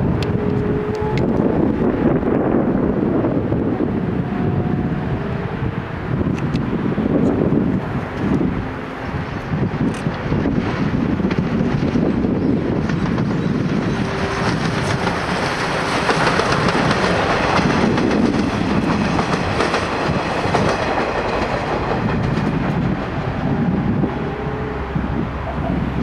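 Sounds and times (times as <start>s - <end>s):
train wheels clacking over rail joints: 9.4s - 23.2s.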